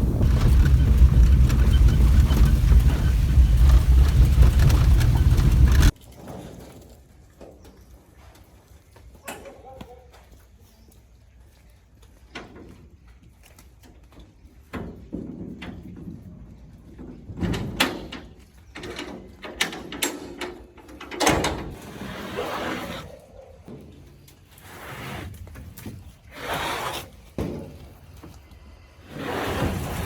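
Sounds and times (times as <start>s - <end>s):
short scrape: 21.8s - 23.2s, 24.6s - 25.6s, 26.3s - 27.2s, 29.0s - 30.0s.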